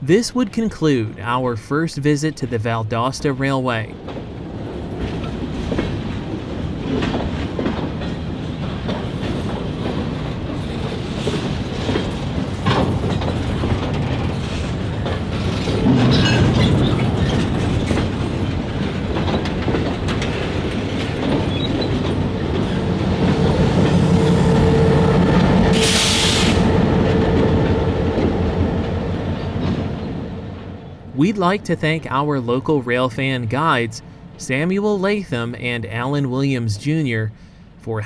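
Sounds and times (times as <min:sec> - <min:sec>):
train rumble: 0:00.0 - 0:38.0
freight train wheels clicking: 0:04.0 - 0:30.8.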